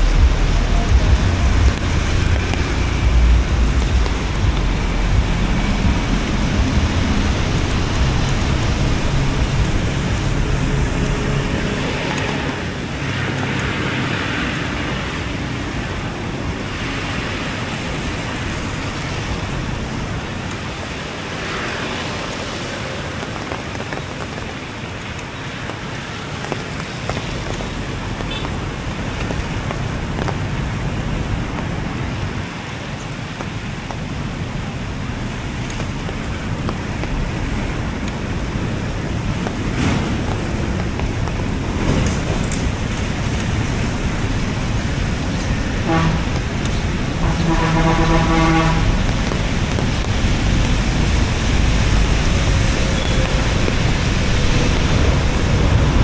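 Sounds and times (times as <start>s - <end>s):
low rumble: 0.0s - 12.2s
rain hissing: 0.0s - 56.0s
road traffic: 0.0s - 56.0s
vehicles passing: 0.0s - 56.0s.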